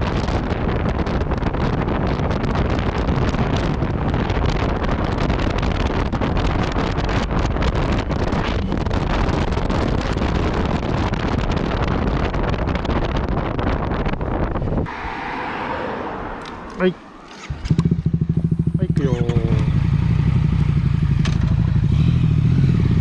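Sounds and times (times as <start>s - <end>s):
wind buffeting microphone: 0.0s - 23.0s
motorcycle engine running: 17.3s - 23.0s.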